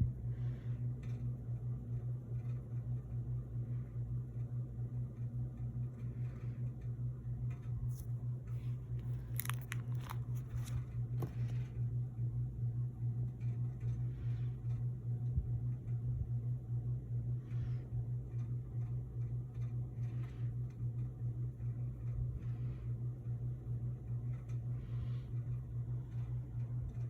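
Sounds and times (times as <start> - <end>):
low electrical hum: 0.0 - 27.0
plastic crinkles and clicks: 8.9 - 11.6.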